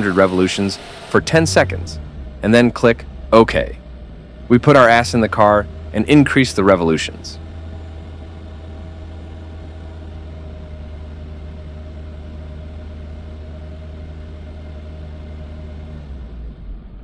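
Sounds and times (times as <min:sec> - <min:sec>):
car engine at raised revs: 0:00.0 - 0:17.0.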